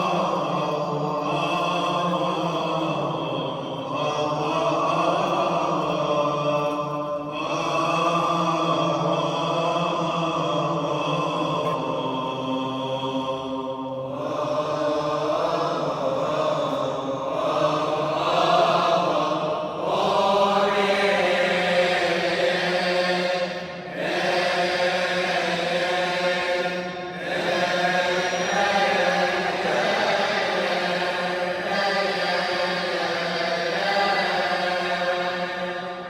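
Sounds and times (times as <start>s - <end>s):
male choir chanting a hymn: 0.0s - 36.0s.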